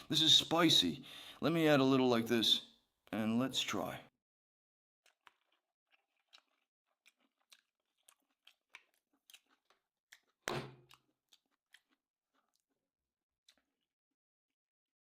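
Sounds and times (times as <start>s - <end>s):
person chewing wetly: 5.0s - 14.0s.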